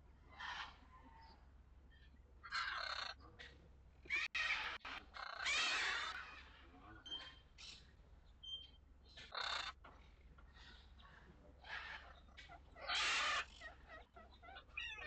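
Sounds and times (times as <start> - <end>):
bird harsh raspy calls: 0.3 - 3.3, 4.1 - 9.8, 11.6 - 15.0.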